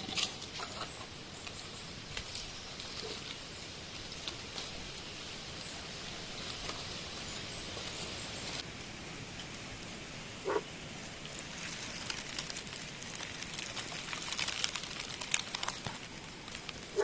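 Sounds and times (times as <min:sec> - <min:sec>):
small clicks and rustles: 0:11.2 - 0:17.0.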